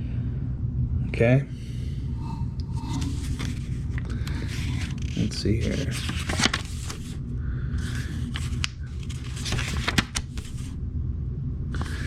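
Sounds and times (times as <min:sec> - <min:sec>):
paper pages rustling: 0:02.8 - 0:07.2, 0:07.8 - 0:10.8.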